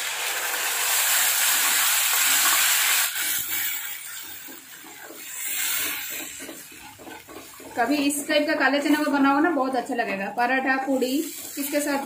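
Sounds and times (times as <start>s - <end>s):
paste sizzling in hot oil: 0.0s - 12.0s
spatula scraping pan: 2.4s - 12.0s.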